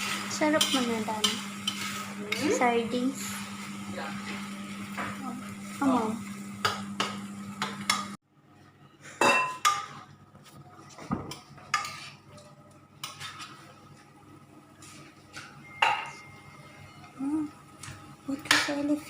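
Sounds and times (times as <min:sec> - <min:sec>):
utensils and dishes clinking: 0:15.3 - 0:17.2.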